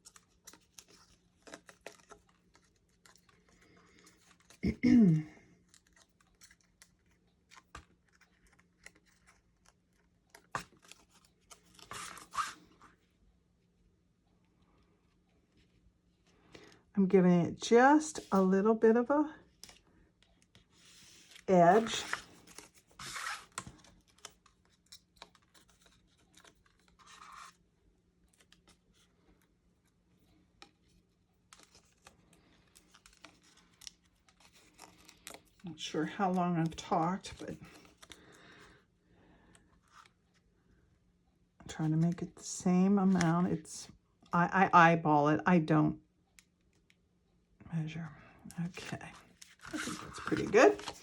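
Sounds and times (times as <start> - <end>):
paper rustling: 0.0 - 4.7, 5.6 - 12.9, 18.2 - 18.5, 20.4 - 27.6, 30.6 - 38.7, 48.8 - 51.0
paper scratching and clicks: 49.6 - 51.0.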